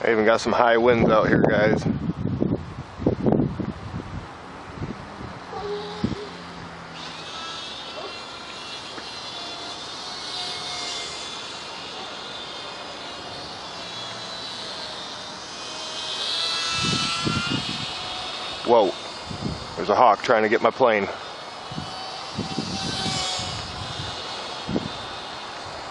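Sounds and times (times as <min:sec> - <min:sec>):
wind noise: 0:00.7 - 0:07.1, 0:14.6 - 0:25.9
model plane motor whine: 0:05.4 - 0:25.9.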